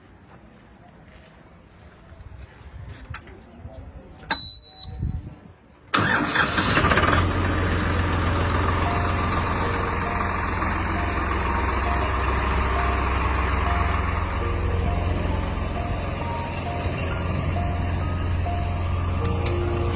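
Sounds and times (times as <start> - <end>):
tractor diesel engine cranking: 5.9 - 19.9
diesel engine idling: 6.0 - 19.9.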